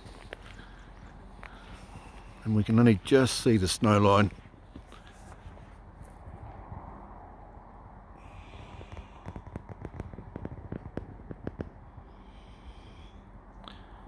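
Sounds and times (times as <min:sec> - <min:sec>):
steady low rumble: 0:00.0 - 0:14.0
sharp clicks and knocks: 0:08.7 - 0:11.8.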